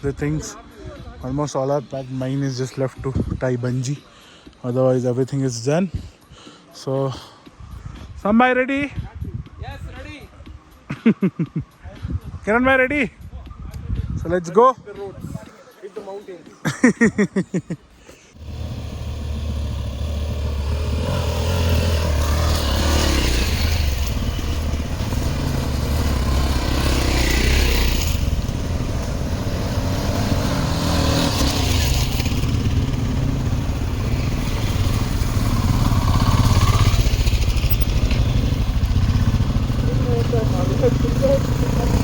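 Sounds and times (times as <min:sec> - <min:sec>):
motorcycle engine running: 0:18.4 - 0:42.0
rushing noise: 0:18.4 - 0:42.0.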